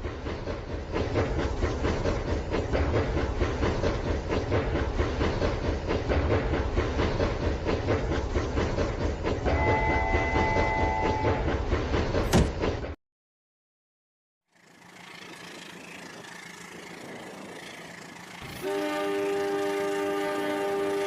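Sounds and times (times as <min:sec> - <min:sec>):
electronic train whistle: 0:09.4 - 0:11.5, 0:18.4 - 0:21.0
toy train motor hum: 0:14.6 - 0:18.5.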